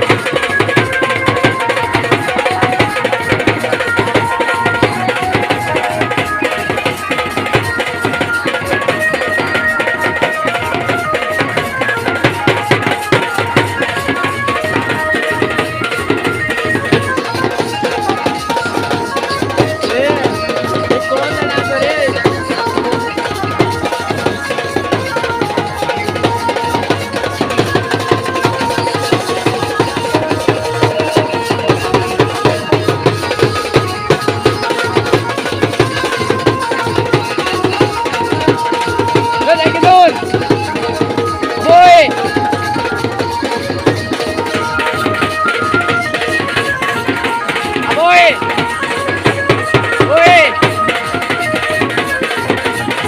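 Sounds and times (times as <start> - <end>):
fast hand-drum percussion: 0.0 - 53.0.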